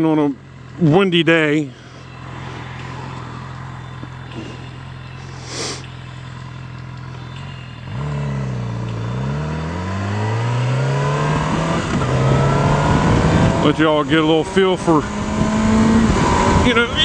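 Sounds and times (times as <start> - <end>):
motorcycle engine accelerating: 0.0 - 17.0
wind noise on microphone: 11.4 - 13.8, 15.1 - 17.0.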